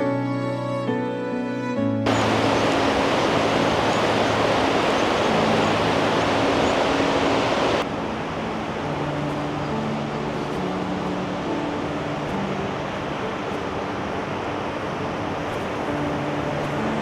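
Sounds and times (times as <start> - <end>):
fast river rushing: 2.1 - 8.8.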